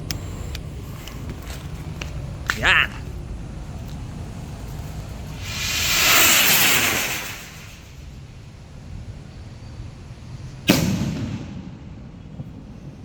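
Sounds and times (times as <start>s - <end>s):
stick rocket hissing: 5.0s - 8.2s
firework bang: 5.4s - 8.1s, 10.7s - 12.7s.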